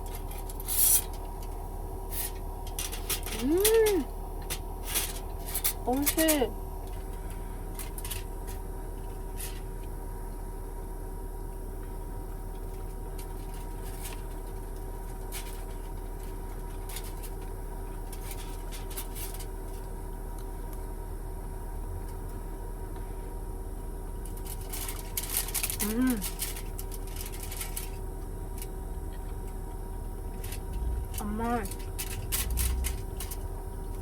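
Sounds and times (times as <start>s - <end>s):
low hum and rumble: 0.0s - 34.0s.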